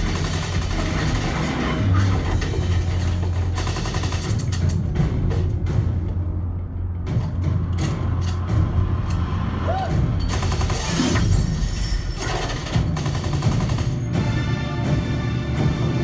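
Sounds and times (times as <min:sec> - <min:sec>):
gunfire bursts: 0:00.0 - 0:01.9, 0:10.2 - 0:11.3, 0:12.2 - 0:14.1
dramatic music score: 0:00.0 - 0:16.0.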